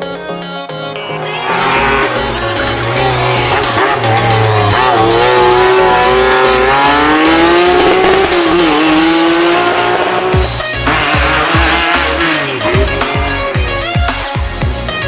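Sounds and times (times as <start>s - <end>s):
background music with steady beat: 0.0s - 15.0s
tyre squeal: 1.2s - 2.4s
race car engine revving: 1.3s - 13.5s.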